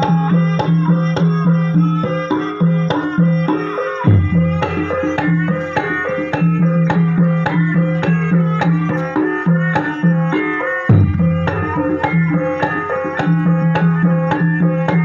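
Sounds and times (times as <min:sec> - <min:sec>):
hand drums beating: 0:00.0 - 0:15.0
tuned percussion notes: 0:00.0 - 0:15.0
deep booming drum stroke: 0:10.9 - 0:11.8.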